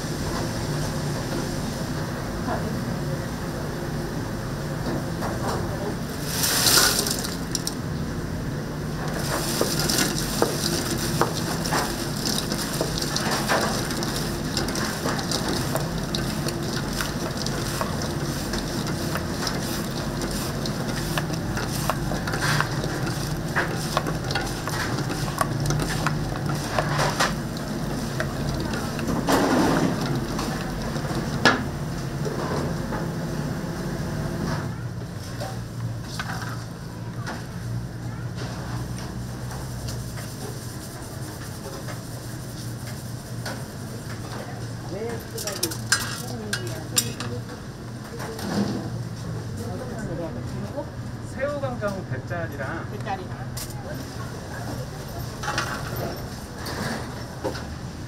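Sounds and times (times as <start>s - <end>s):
steady low hum: 0.0s - 36.1s
pot sizzling and crackling: 6.1s - 8.0s, 8.9s - 32.3s, 45.0s - 47.3s.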